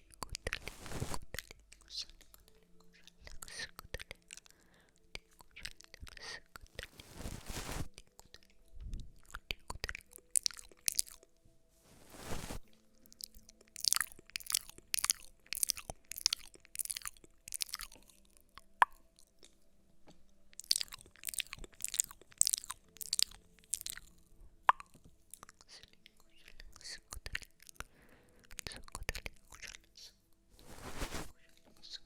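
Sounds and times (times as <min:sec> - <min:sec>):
crisp crunching strokes: 0:00.4 - 0:01.5, 0:06.6 - 0:08.4, 0:11.8 - 0:18.2, 0:20.6 - 0:24.1, 0:30.6 - 0:31.4.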